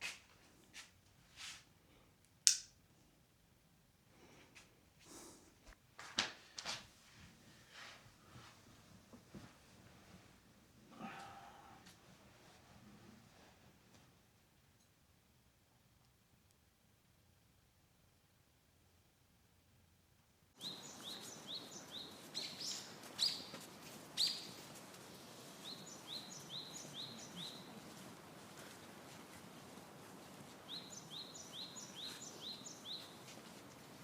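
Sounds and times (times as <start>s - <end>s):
faint outdoor hiss: 0.0s - 34.0s
songbird chirping: 20.6s - 34.0s.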